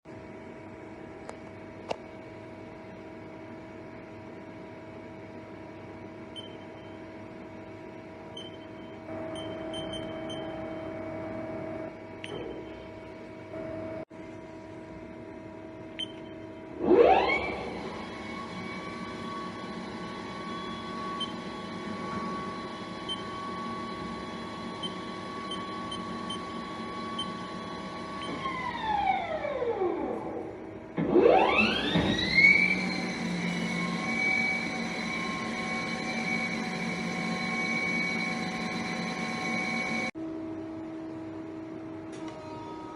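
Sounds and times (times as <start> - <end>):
machine humming: 5.0 - 14.1, 14.9 - 42.9
lathe spindle whine: 16.8 - 30.5, 31.1 - 40.2.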